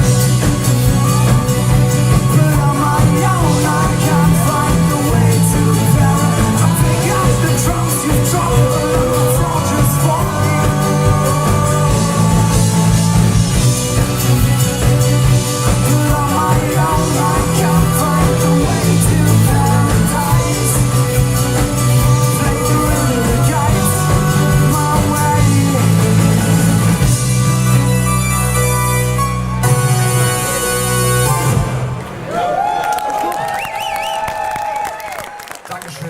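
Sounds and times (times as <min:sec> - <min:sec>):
live rock band playing: 0:00.0 - 0:32.3
person singing: 0:00.8 - 0:27.1.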